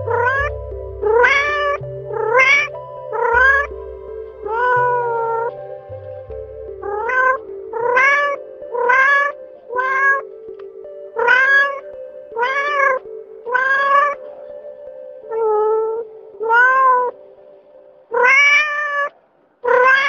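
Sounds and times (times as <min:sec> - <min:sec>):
soft background music: 0:00.0 - 0:20.0
cat meowing: 0:01.1 - 0:03.7, 0:12.4 - 0:14.2, 0:15.3 - 0:17.1, 0:18.1 - 0:19.1, 0:19.7 - 0:20.0.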